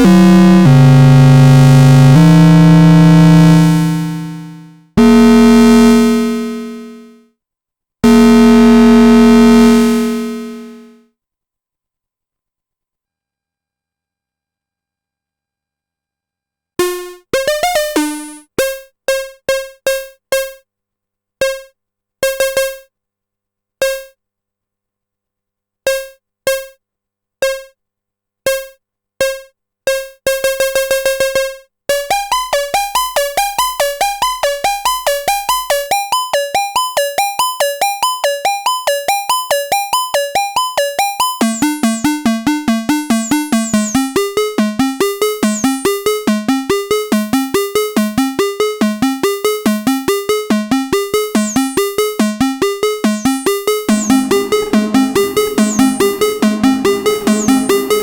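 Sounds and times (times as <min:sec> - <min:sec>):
synthesizer plucked notes: 0:00.0 - 0:06.8, 0:42.9 - 0:44.2, 0:45.0 - 0:46.1, 0:50.9 - 0:58.0.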